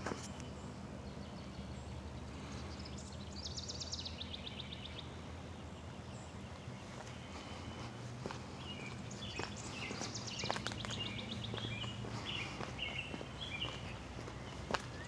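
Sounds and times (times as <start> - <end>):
songbird trill: 0.0 - 15.0
steady low rumble: 4.1 - 15.0.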